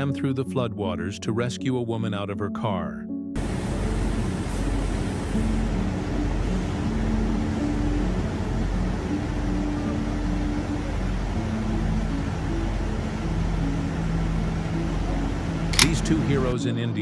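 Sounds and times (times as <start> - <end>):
background music: 0.0 - 17.0
noisy rumble: 3.4 - 16.6.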